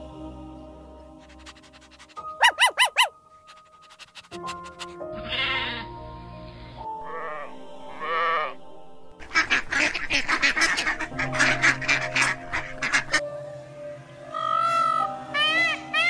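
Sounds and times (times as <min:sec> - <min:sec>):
background music: 0:00.0 - 0:16.0
rapid harsh animal calls: 0:01.2 - 0:05.9, 0:06.7 - 0:08.6, 0:09.2 - 0:13.2
sheep bleating: 0:05.1 - 0:05.9, 0:07.0 - 0:08.6.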